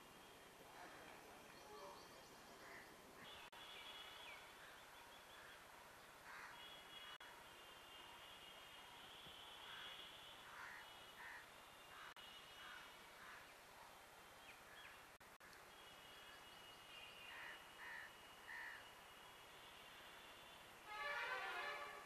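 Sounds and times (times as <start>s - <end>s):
faint crows cawing: 2.6s - 3.5s, 4.6s - 7.2s, 9.6s - 13.5s, 17.2s - 18.9s.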